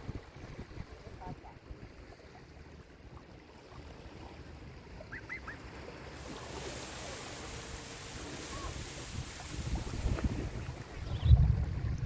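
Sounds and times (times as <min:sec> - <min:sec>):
sea waves washing onto shore: 0:05.6 - 0:12.0.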